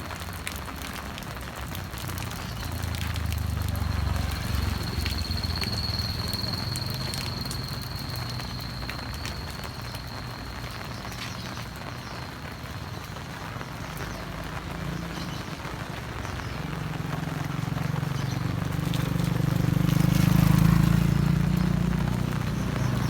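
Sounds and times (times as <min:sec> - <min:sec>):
heavy rain: 0:00.0 - 0:23.0
vehicle engine passing: 0:02.0 - 0:10.6, 0:16.3 - 0:23.0.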